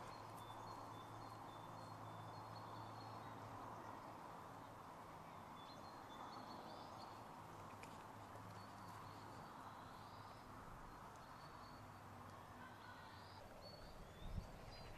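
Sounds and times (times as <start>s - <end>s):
distant small birds calling: 8.5s - 14.9s.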